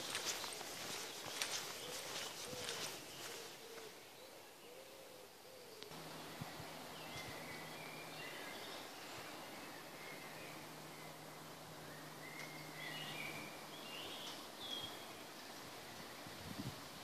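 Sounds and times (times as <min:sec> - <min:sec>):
soft hooting bird calls: 0:00.0 - 0:16.4
high chirping birdsong: 0:00.0 - 0:17.0
low steady hum: 0:05.9 - 0:16.4.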